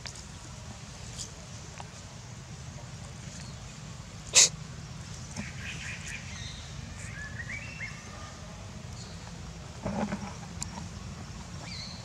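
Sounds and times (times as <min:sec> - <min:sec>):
monkey hissing snort: 0:04.3 - 0:04.6.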